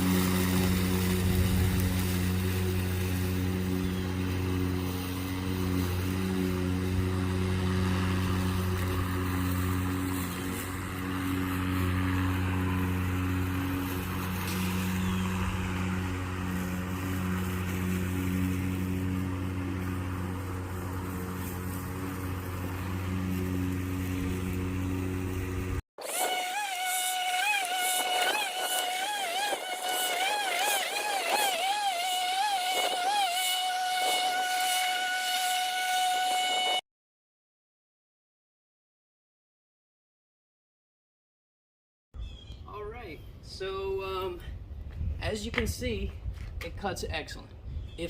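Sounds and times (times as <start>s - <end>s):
electric lawn mower cutting grass: 0.0s - 36.8s.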